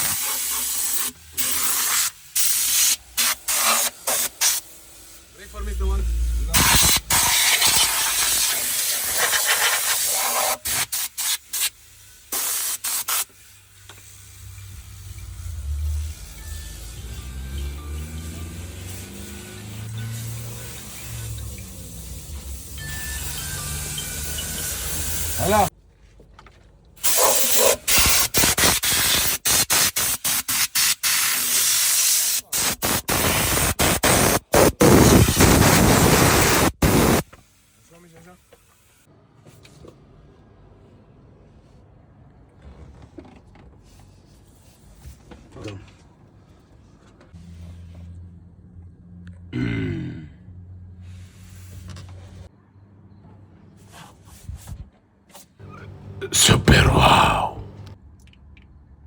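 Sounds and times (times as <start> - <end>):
spray gun hissing: 0.0 - 15.6.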